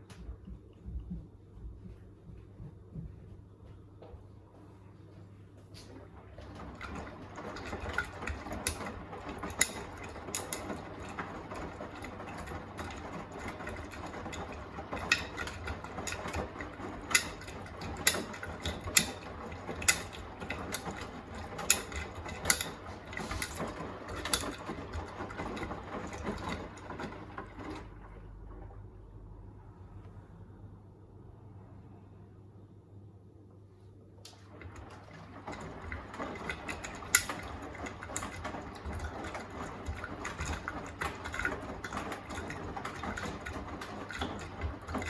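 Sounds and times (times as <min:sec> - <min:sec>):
washing machine drum turning: 0:05.8 - 0:29.0, 0:34.3 - 0:45.0.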